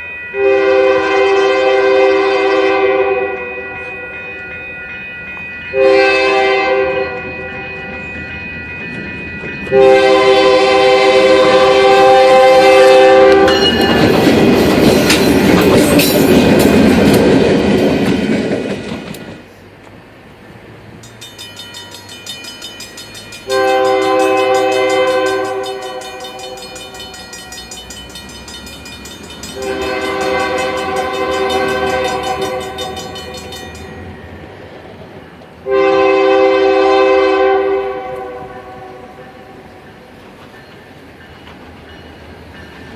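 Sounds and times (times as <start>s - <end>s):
rolling clatter of train cars: 0.0s - 42.9s
locomotive air horn blasts: 0.4s - 4.0s, 5.8s - 7.8s, 9.7s - 13.6s, 23.5s - 26.8s, 29.6s - 32.9s, 35.6s - 39.6s.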